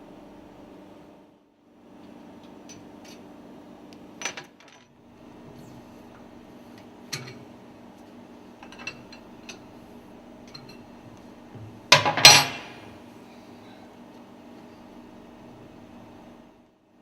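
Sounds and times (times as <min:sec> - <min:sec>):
steady low hum: 0:04.9 - 0:17.0
loud metal clattering clank: 0:12.0 - 0:12.9.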